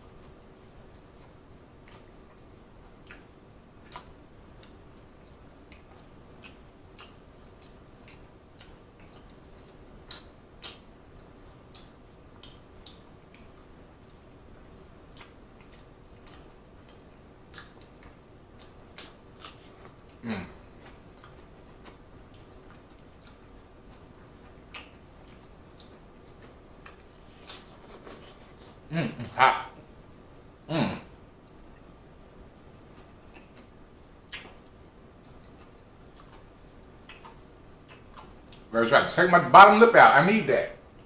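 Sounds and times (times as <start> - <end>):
chewing soft food: 0.0 - 28.9, 31.4 - 38.7
faint steady hum: 0.0 - 41.0
falling mouth sound: 20.2 - 20.6, 30.7 - 31.1
wet mouth clicks and lip smacks: 33.3 - 34.6.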